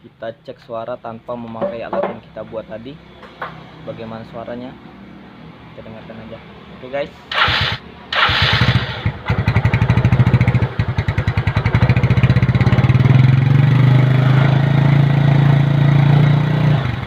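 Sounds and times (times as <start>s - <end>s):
small motorcycle engine: 7.3s - 17.0s.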